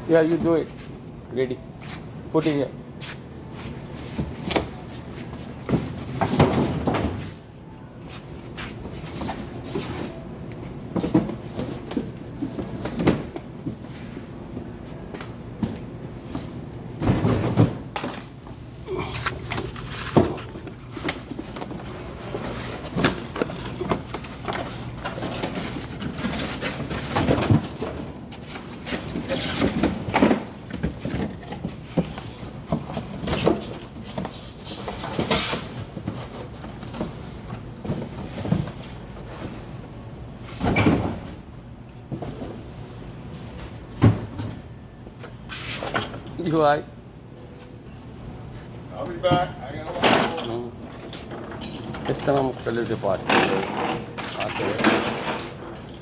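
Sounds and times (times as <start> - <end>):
cardboard boxes knocking and thumping: 5.4 - 7.4, 10.9 - 13.9, 16.5 - 18.2, 19.2 - 39.6.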